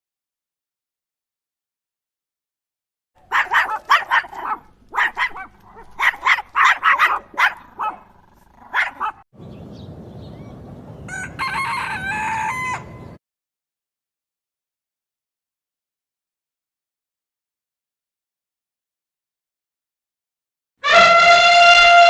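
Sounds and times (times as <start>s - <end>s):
rooster crowing: 11.0s - 13.2s.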